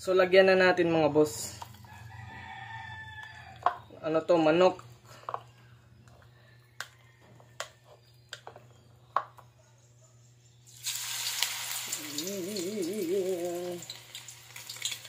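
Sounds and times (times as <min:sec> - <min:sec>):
frying hiss in a wok: 0:10.7 - 0:15.0
wavering pitched sound: 0:11.9 - 0:13.9.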